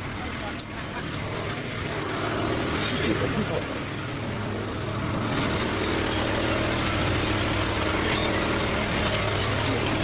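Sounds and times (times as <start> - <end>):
engine idling: 0.0 - 10.0
thin high whine: 1.2 - 10.0.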